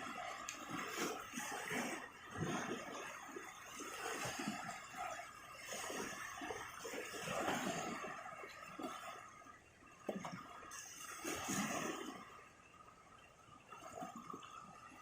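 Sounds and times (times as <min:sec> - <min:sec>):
sea water washing at shoreline: 0:00.0 - 0:15.0.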